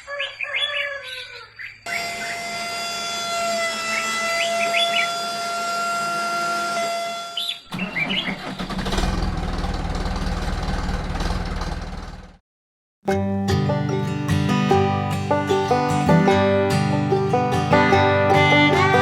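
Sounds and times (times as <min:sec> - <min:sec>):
small motor whining: 0:01.9 - 0:07.4
low fast-pulsing engine: 0:08.4 - 0:12.4, 0:15.5 - 0:19.0.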